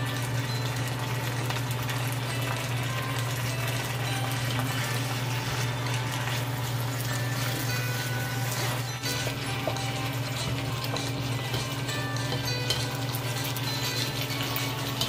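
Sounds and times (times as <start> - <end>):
food sizzling in a wok: 0.0 - 15.0
wooden spatula stirring: 3.3 - 15.0.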